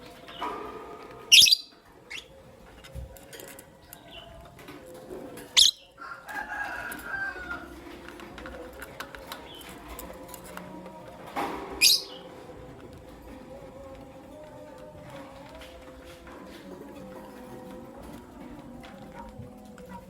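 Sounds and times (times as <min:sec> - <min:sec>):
lovebirds shrill calls: 0:01.3 - 0:02.3, 0:05.6 - 0:05.9, 0:11.8 - 0:12.2
lovebirds soft chattering: 0:01.3 - 0:02.4, 0:05.4 - 0:06.0, 0:11.8 - 0:12.3.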